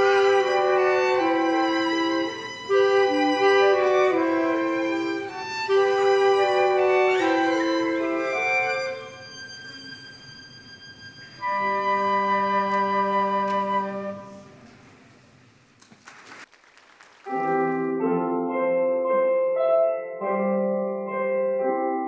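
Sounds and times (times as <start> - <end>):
piano playing: 0.0 - 14.7, 17.3 - 22.0
woodwind ensemble with violin: 0.0 - 14.8.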